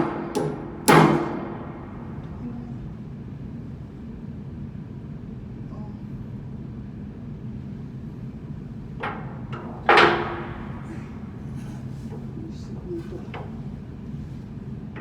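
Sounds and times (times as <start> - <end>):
steady low hum: 0.0 - 15.0
light metal knocks: 9.0 - 13.9.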